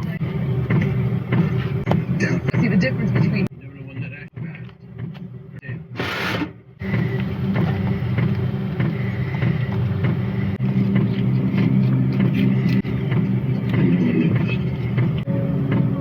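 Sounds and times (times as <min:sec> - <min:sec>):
van engine humming: 0:00.0 - 0:16.0.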